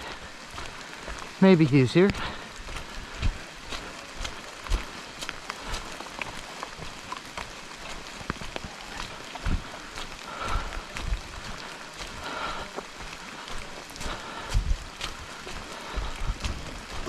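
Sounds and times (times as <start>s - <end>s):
rain falling: 0.0s - 17.0s
raindrops ticking close by: 0.0s - 17.0s
dull low thumps: 14.4s - 15.2s.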